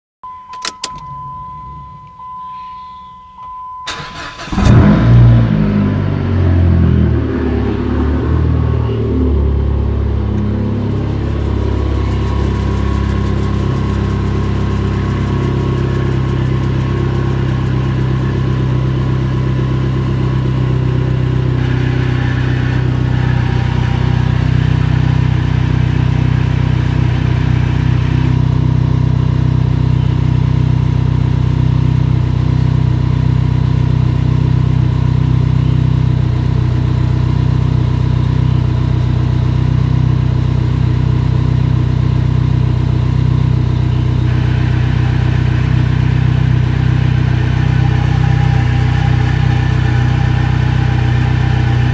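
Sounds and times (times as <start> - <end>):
car engine idling: 3.8 - 51.9
clutch bearing whirring: 9.8 - 30.3, 42.3 - 51.9.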